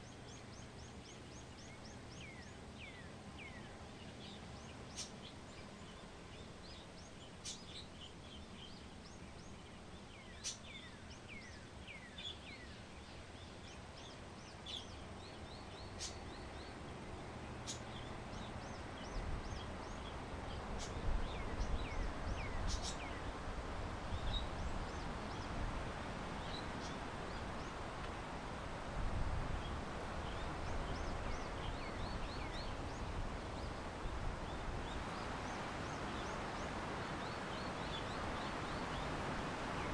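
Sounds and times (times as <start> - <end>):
small birds chirping: 0.0 - 39.9
wind gusts on microphone: 16.1 - 39.9.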